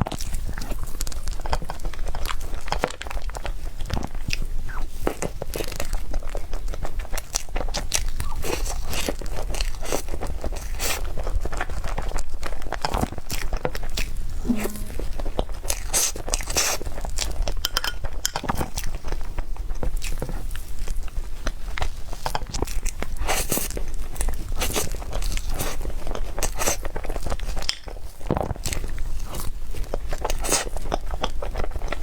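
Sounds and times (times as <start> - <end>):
low hum: 14.4 - 15.4.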